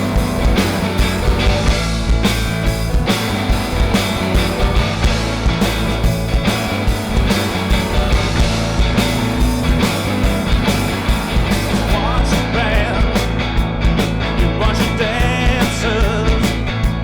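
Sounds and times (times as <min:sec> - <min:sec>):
live rock band playing: 0:00.0 - 0:17.0
steady drum beat: 0:00.0 - 0:17.0.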